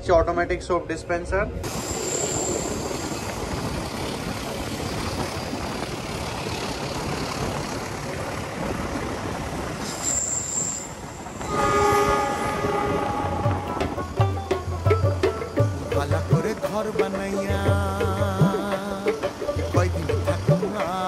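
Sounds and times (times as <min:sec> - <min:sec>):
train wind and wheels on rail: 0:00.0 - 0:21.0
high-pitched wheel squeal: 0:01.8 - 0:03.8, 0:09.8 - 0:15.7.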